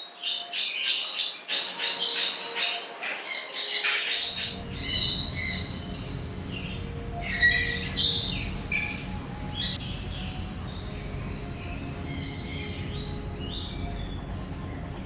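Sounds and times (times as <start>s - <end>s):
small birds chirping: 0.0s - 15.0s
steady low hum: 4.3s - 15.0s.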